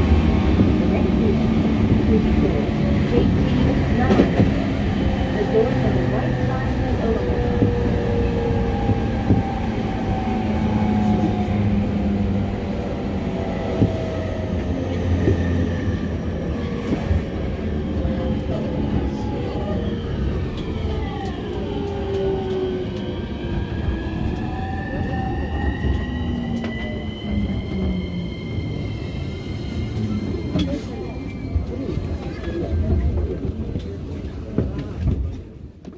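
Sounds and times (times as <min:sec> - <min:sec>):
train wheels rumbling on rails: 0:00.0 - 0:35.9.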